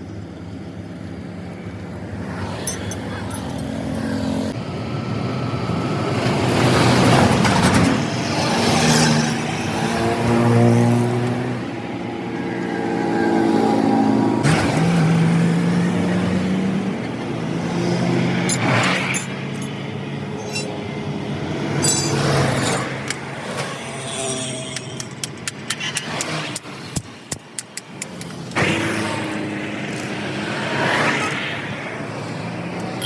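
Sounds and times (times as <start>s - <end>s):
vehicle engines running: 0.0s - 33.0s
sharp clicks and taps: 24.8s - 28.6s.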